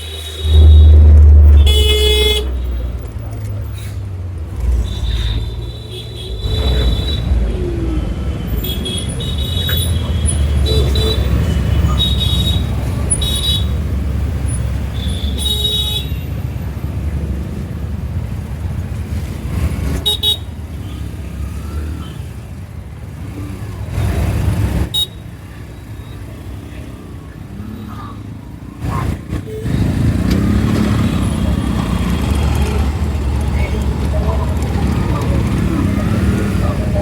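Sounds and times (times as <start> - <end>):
car horn toots: 0.0 - 3.2, 4.6 - 7.7, 8.5 - 13.9, 14.5 - 16.3, 20.0 - 21.1, 24.8 - 25.4
wind and passing traffic rumble: 0.0 - 37.0.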